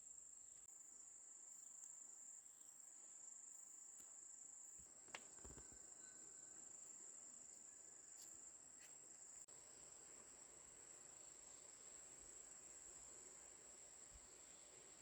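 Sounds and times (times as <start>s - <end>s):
insects trilling: 5.4s - 15.0s.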